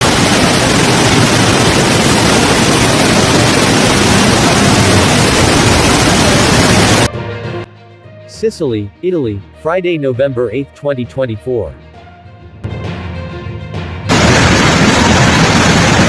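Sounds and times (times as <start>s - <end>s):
water rushing loudly: 0.0s - 7.1s, 14.1s - 16.0s.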